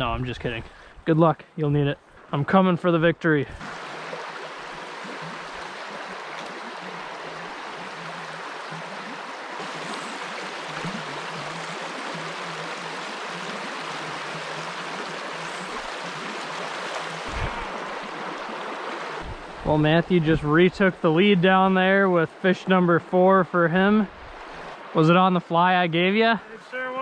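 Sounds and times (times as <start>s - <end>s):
stream water rushing: 3.5s - 27.0s.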